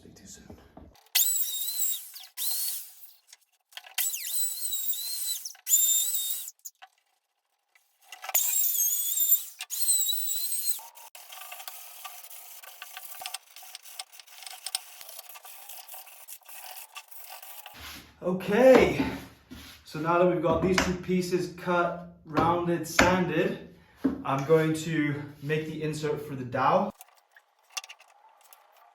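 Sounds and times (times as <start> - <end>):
woodworking power tool whining: 1.0 - 6.7, 8.1 - 17.8
rubbing sound: 10.5 - 18.1.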